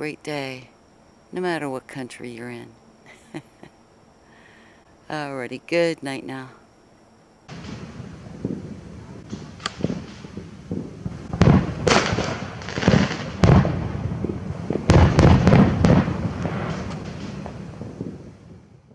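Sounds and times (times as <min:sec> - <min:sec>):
fireworks bangs and pops: 0:07.5 - 0:18.9.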